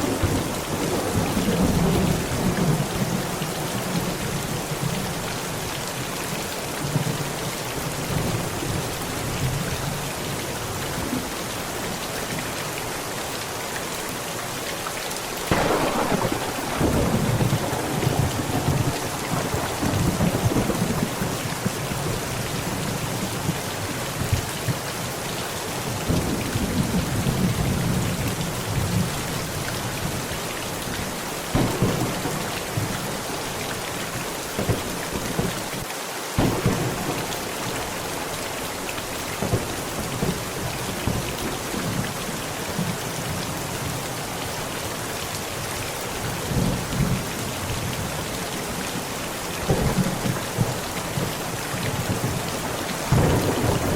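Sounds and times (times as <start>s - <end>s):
heavy rain on a tent: 0.0s - 53.9s
sharp thunder cracks: 15.5s - 21.8s, 31.5s - 33.1s, 36.4s - 38.0s, 52.0s - 53.9s
thunder rumbling: 15.5s - 23.6s, 31.5s - 33.6s, 36.4s - 38.8s, 49.6s - 53.9s.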